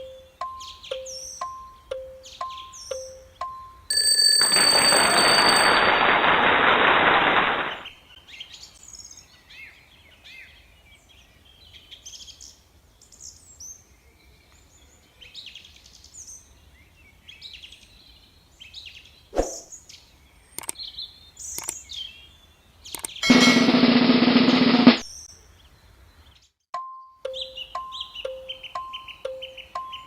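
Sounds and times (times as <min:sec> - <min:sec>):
small birds chirping: 0:00.0 - 0:03.7, 0:07.7 - 0:23.2, 0:25.1 - 0:30.0
sharp clicks: 0:20.6 - 0:20.8, 0:21.5 - 0:21.8, 0:22.9 - 0:23.2.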